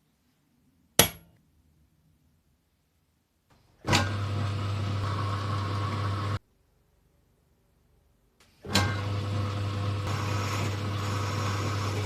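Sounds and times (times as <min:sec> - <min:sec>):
machine humming: 0:09.0 - 0:12.0.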